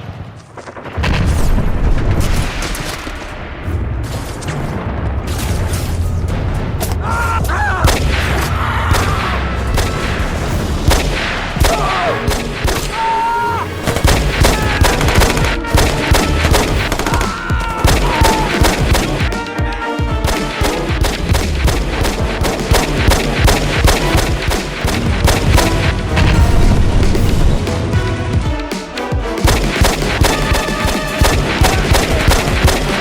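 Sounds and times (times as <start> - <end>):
booming explosions: 0.0 - 13.1, 13.7 - 28.6, 29.2 - 33.0
low rumble: 1.0 - 11.6, 21.1 - 28.6
machine-gun fire: 10.8 - 12.9, 13.9 - 27.6, 29.4 - 33.0.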